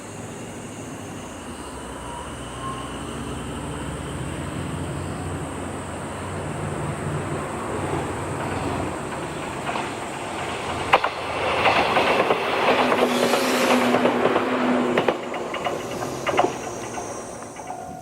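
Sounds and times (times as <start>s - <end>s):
train rushing noise: 0.0s - 18.0s
train wheels clicking over rails: 6.1s - 18.0s.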